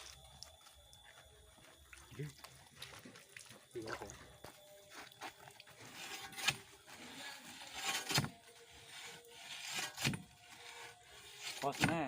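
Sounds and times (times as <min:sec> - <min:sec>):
hand drill scraping sandy soil: 0:05.8 - 0:12.0.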